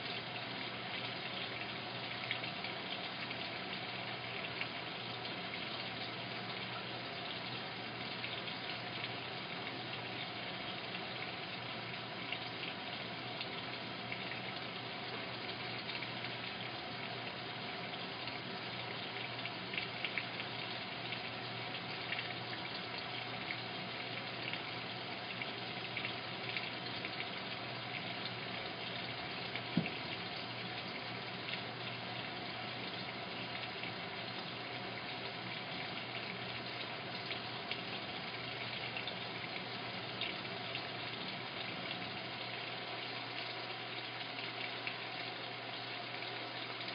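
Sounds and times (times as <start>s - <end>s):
low steady hum: 0.0s - 46.9s
water rushing into drum: 29.6s - 30.3s.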